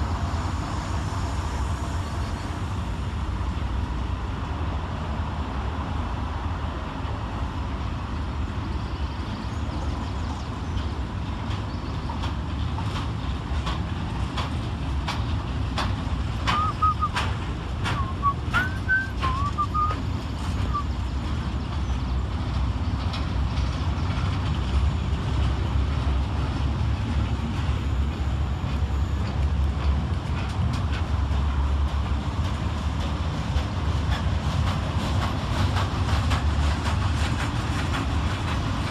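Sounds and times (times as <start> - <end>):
freight train rumble: 0.0 - 38.9
wheels clicking over rails: 9.7 - 38.9.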